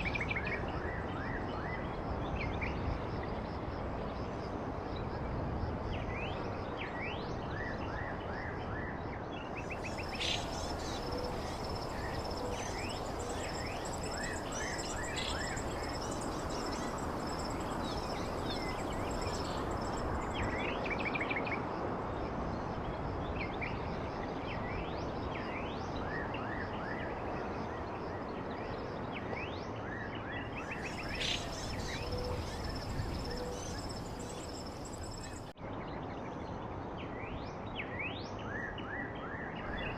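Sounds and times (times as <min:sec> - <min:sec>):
songbirds chirping: 0:09.4 - 0:21.4, 0:28.4 - 0:35.6.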